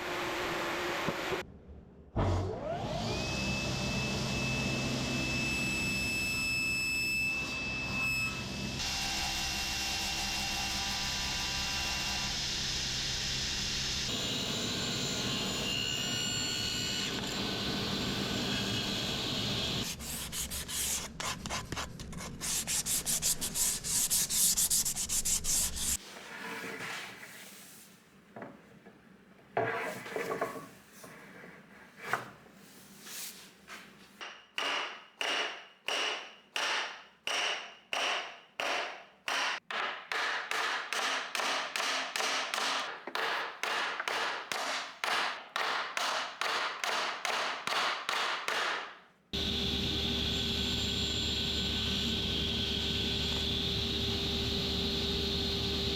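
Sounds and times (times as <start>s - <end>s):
wood being sanded by hand: 19.8s - 26.0s.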